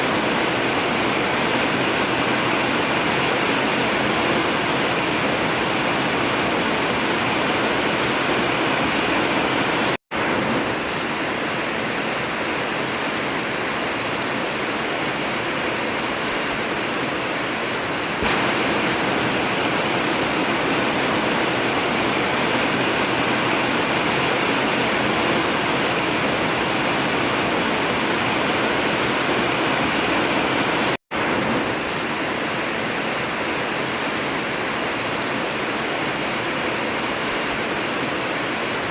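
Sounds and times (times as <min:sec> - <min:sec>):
heavy rain on a tin roof: 0:00.0 - 0:38.9.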